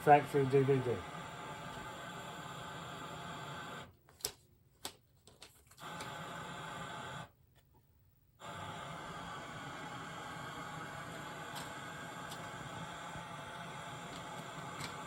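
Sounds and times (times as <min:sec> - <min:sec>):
tv static hiss: 0:00.0 - 0:03.9.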